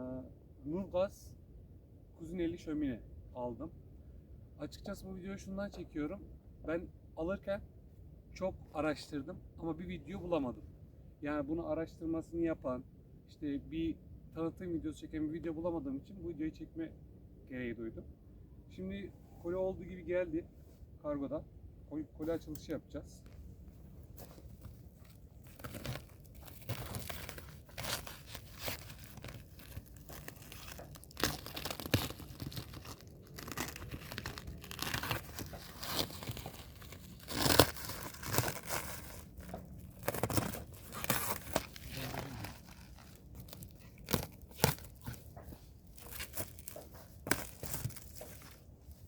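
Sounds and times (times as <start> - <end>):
cardboard crinkling and scraping: 23.3 - 49.0
packing tape tearing: 25.0 - 48.6.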